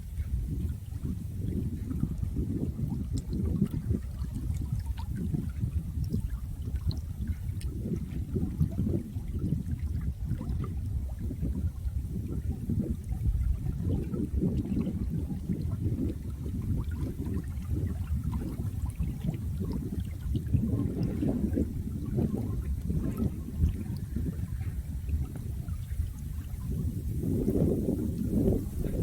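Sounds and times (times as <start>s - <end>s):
small water splashes: 0.0s - 29.0s
flowing water rush: 15.4s - 29.0s.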